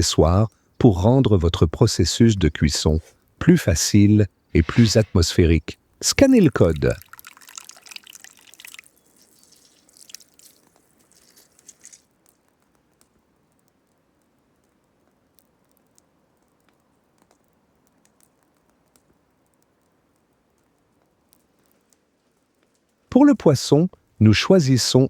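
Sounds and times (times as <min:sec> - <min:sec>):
wet clicks and squelches: 0:06.0 - 0:23.0
splashy rush of water: 0:06.2 - 0:12.0.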